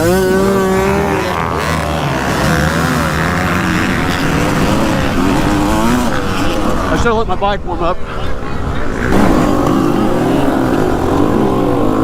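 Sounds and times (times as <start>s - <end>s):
dirt bike engines at full throttle: 0.0s - 12.0s
man talking: 6.9s - 8.0s.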